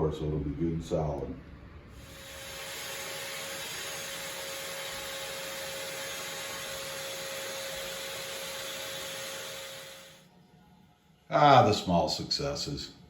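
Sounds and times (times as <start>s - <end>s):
toilet tank refilling hiss: 2.0s - 10.2s.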